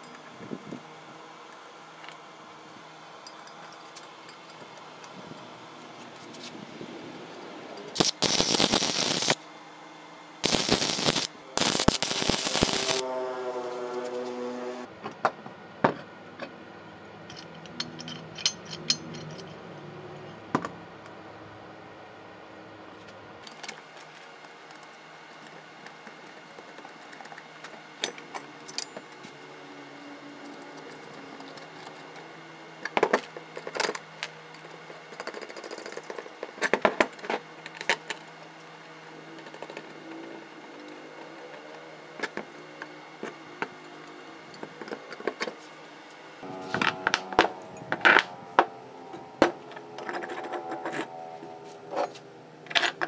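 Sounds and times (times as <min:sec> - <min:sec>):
metallic clicks and clinks: 0:17.2 - 0:19.6.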